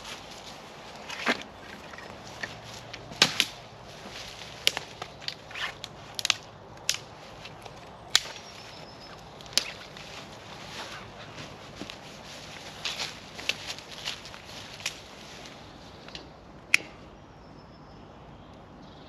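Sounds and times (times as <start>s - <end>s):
sharp cracks and snaps: 2.4s - 3.6s, 4.4s - 10.1s, 12.8s - 15.1s.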